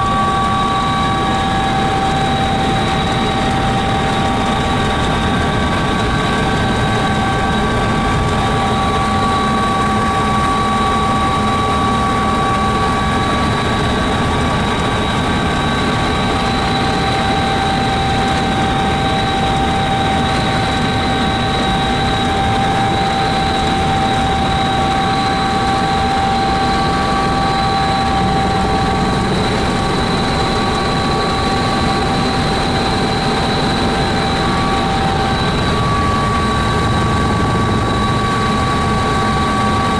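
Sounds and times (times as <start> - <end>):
helicopter engine and rotors drone: 0.0 - 39.9
high whines: 15.8 - 39.9.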